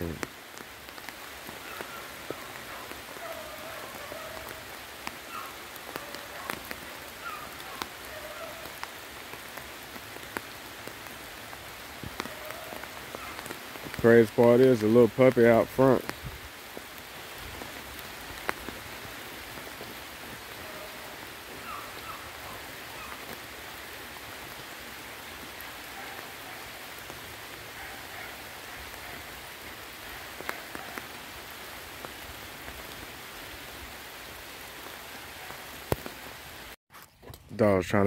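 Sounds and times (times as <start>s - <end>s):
heavy rain on leafy crops: 0.0s - 36.8s.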